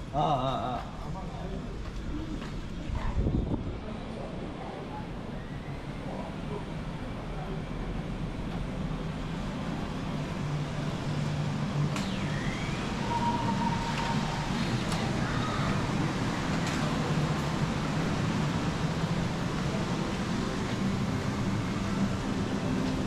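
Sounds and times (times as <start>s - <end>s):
road traffic hum: 0.0s - 23.0s.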